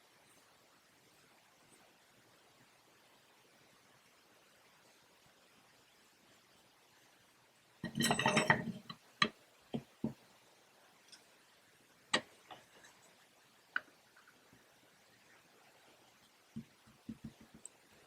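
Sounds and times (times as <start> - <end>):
short rattle: 7.8 - 8.9
hard objects knocking and clicking: 7.8 - 9.0, 16.6 - 17.7.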